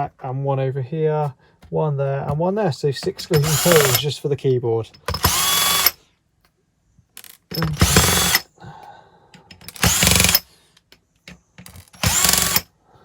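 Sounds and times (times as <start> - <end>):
cordless drill whining: 3.2 - 4.0, 5.1 - 6.0, 7.2 - 8.5, 9.6 - 10.5, 11.6 - 12.7.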